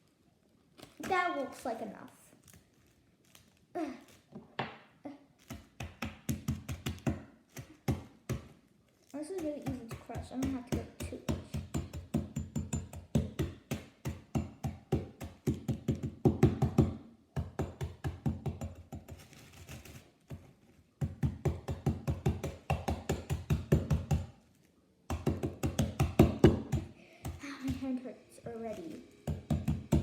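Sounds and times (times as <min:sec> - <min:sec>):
cookies in plastic bag pounded: 0:05.5 - 0:08.6, 0:09.2 - 0:24.4, 0:25.1 - 0:27.8.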